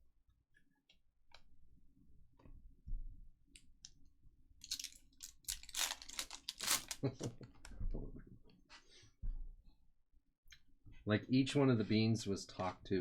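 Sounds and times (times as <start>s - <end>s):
packaging rustling and crinkling: 4.6s - 7.2s.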